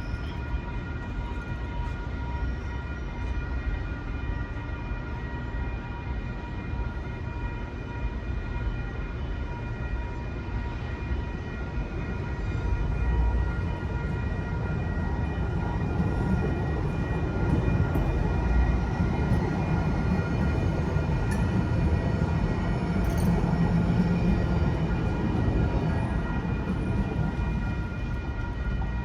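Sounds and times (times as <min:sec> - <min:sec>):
light-rail trolley rumbling: 0:00.0 - 0:29.0
crossing signal bells ringing: 0:13.1 - 0:29.0.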